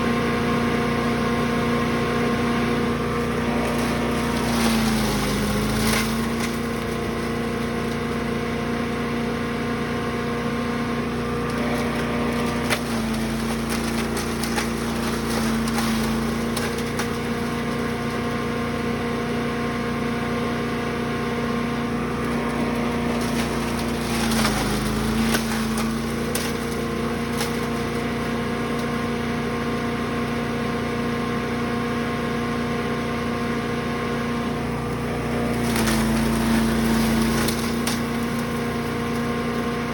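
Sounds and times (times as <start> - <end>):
wood chipper engine running: 0.0 - 39.9
branches cracking and snapping: 2.7 - 9.1, 11.2 - 19.2, 21.8 - 30.4, 34.6 - 39.9.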